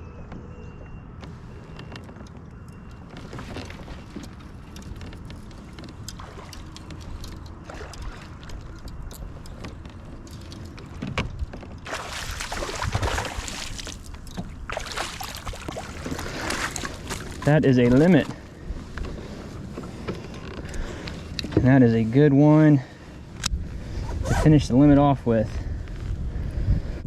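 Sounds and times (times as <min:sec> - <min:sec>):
clicks and knocks in a kayak: 0:01.2 - 0:21.8
fish thrashing water splashing: 0:11.8 - 0:17.5.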